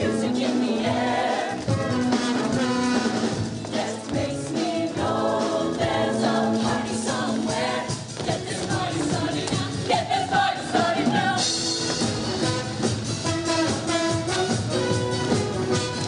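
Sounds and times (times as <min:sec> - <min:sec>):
show choir singing: 0:00.0 - 0:11.7
instrumental backing with drum kit: 0:00.0 - 0:16.0.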